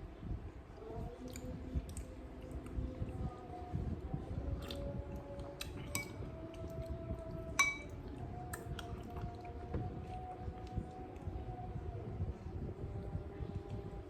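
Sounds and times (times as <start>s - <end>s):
cutlery clinking against plate: 5.8s - 6.2s, 7.6s - 7.9s.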